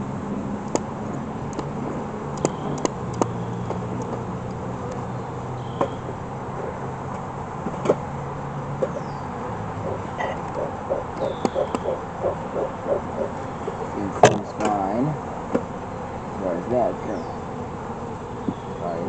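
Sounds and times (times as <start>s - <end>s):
steady low hum: 0.0s - 19.0s
wooden hive frames clicking: 0.6s - 5.1s, 8.8s - 18.8s.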